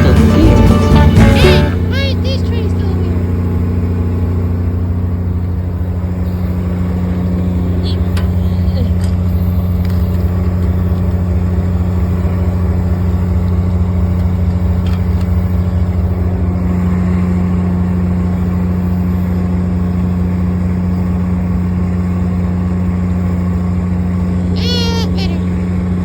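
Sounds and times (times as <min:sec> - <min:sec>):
diesel locomotive idling: 0:00.0 - 0:26.0.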